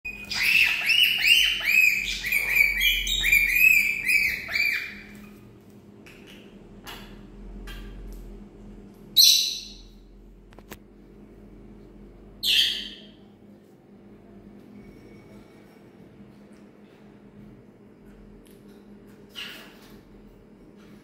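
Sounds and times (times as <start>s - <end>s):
parrot chirping: 0.1s - 5.2s, 9.2s - 10.0s, 12.4s - 13.2s.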